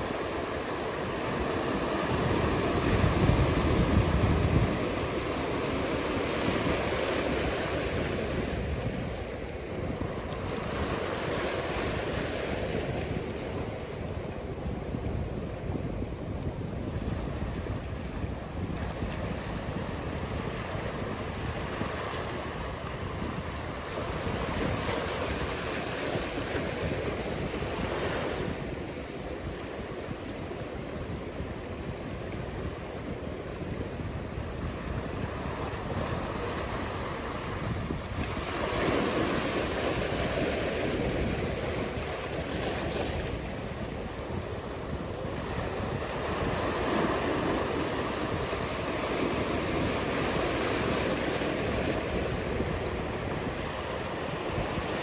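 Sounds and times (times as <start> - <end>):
waves breaking: 0.0 - 55.0
wind noise: 0.0 - 55.0.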